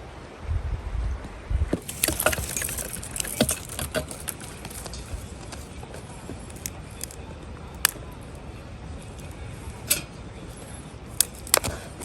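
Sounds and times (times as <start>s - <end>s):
small hard objects clattering: 1.8s - 8.1s, 9.1s - 12.0s.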